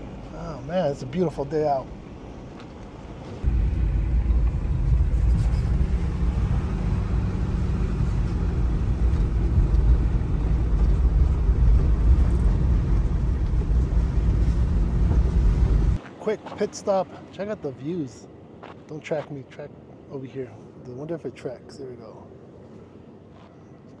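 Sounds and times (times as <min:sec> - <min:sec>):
off-road vehicle driving on dirt: 0:03.3 - 0:17.2.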